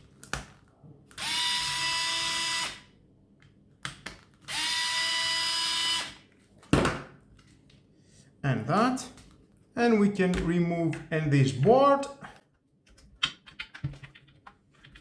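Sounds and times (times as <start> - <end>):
electric screwdriver whining: 1.2 - 2.8, 4.5 - 6.2.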